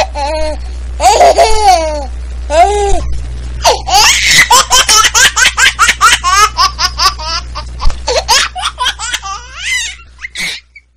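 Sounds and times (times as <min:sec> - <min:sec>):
high-pitched laughter: 0:03.7 - 0:07.1, 0:08.1 - 0:10.9.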